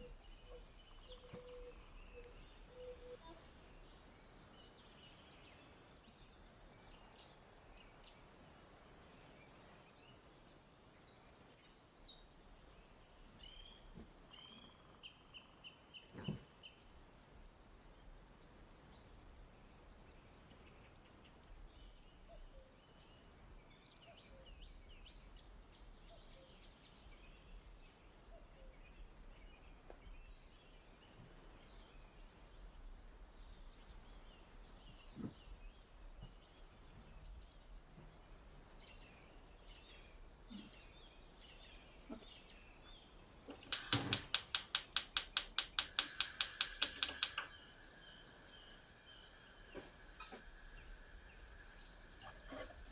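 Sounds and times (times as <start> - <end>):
small birds chirping: 38.7 - 52.9
knock: 43.8 - 47.4.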